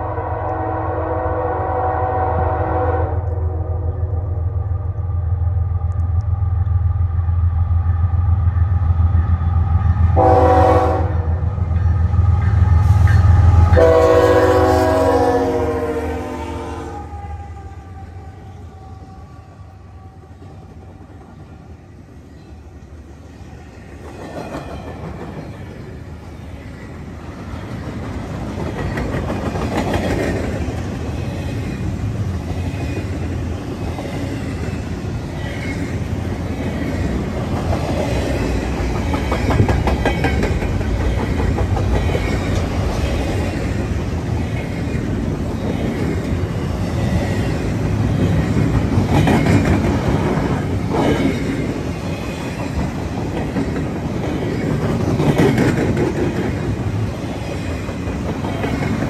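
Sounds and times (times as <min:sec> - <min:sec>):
train wheels clattering on rails: 0:23.9 - 0:59.0.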